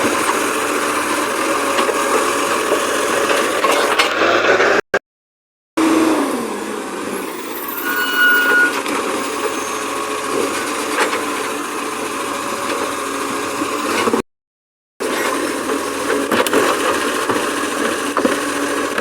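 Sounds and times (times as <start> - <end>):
garbage truck running: 0.0 - 4.8, 5.8 - 14.2, 15.0 - 19.0
short high beep: 7.2 - 9.9.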